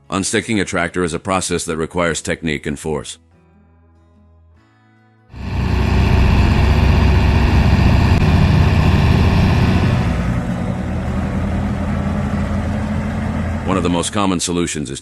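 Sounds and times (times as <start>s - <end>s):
tractor engine droning: 5.4s - 14.6s.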